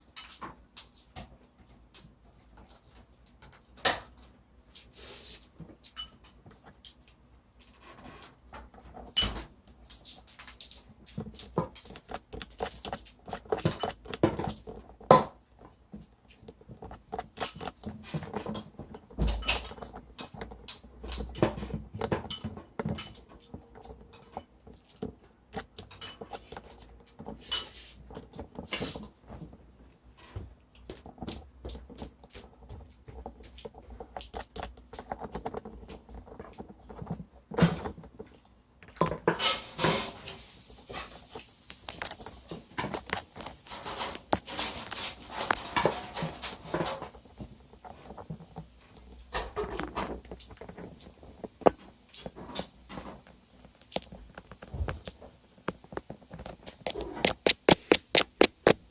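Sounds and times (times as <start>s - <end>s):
spoon scraping in metal bowl: 11.4s - 15.0s.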